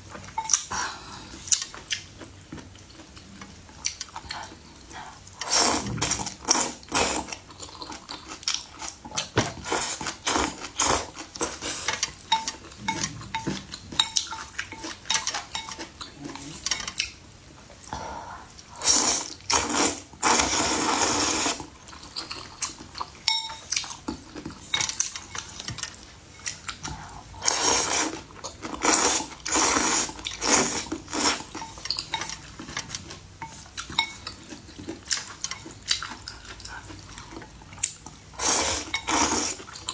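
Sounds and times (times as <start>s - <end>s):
cutlery clinking against dishes: 11.8s - 15.9s, 23.2s - 26.6s, 31.5s - 34.4s.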